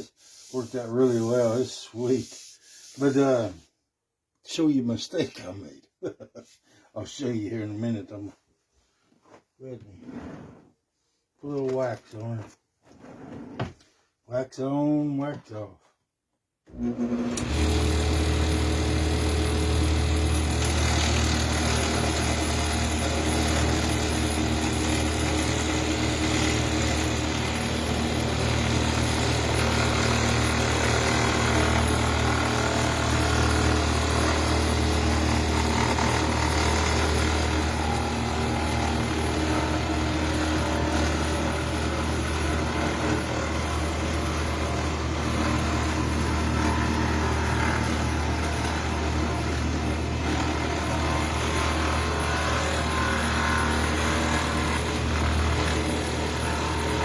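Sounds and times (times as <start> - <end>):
wood lathe motor humming: 16.7 - 57.0.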